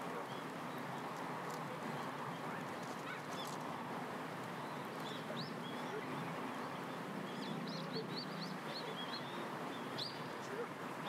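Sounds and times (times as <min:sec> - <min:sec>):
outdoor background noise: 0:00.0 - 0:11.0
small birds chirping: 0:01.9 - 0:03.6, 0:04.5 - 0:10.6.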